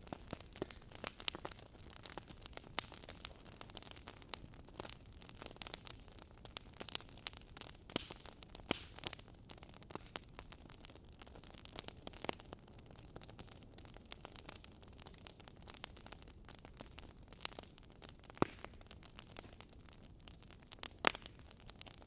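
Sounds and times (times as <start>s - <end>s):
fire hissing: 0.0s - 10.7s
logs crackling and popping: 0.0s - 22.0s.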